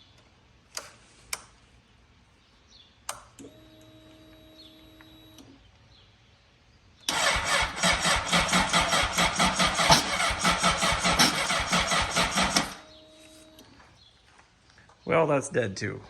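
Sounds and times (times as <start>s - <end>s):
starter cranking engine: 7.1s - 12.9s
fuel pump humming: 7.1s - 13.6s.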